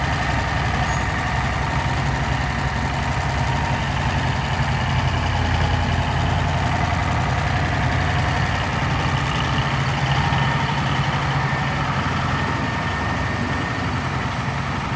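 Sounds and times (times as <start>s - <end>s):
tractor diesel engine idling: 0.0s - 14.9s.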